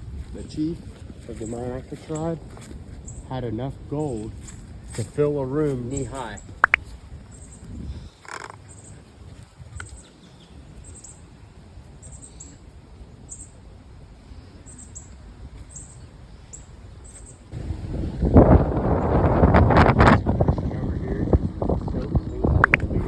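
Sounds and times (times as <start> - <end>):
birds chirping: 0.0 - 13.7, 14.3 - 17.8, 20.7 - 23.0.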